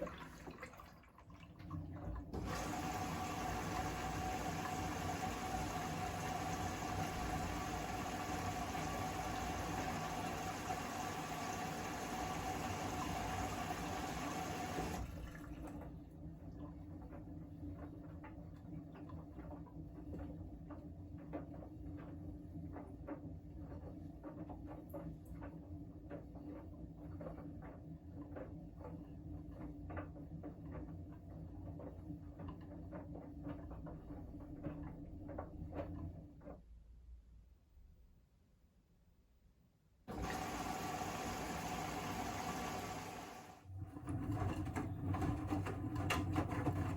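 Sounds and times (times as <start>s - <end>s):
laundry and water splashing: 0.0s - 27.4s
washing machine motor hum: 0.0s - 36.6s, 40.1s - 46.9s.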